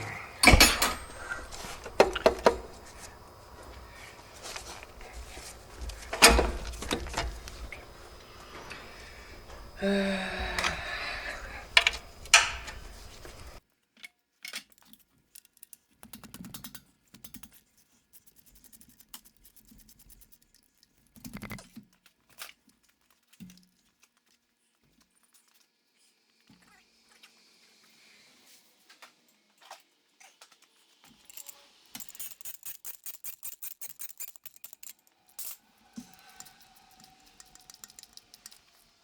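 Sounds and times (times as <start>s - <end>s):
clinks of hand tools and metal: 0.0s - 13.6s, 31.0s - 38.6s
sharp knocks: 0.4s - 7.7s.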